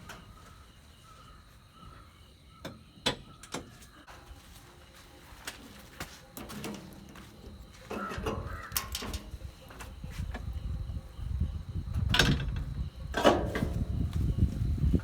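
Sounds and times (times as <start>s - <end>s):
bucket scraping and clanking: 6.4s - 10.0s, 13.1s - 14.0s.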